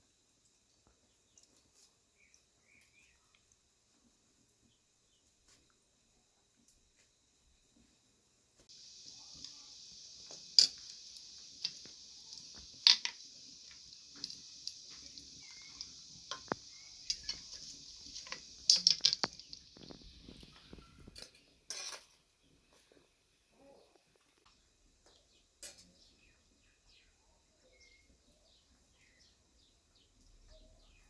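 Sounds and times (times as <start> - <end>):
steady high hiss: 0.0 - 31.0
cutlery and dishes clinking: 10.5 - 10.9, 15.5 - 19.5, 21.2 - 22.2, 25.6 - 25.9.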